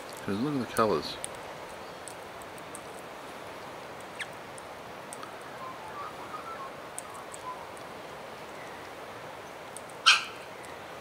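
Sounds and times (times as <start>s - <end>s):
outdoor background hiss: 0.0s - 11.0s
bird calls: 3.6s - 11.0s.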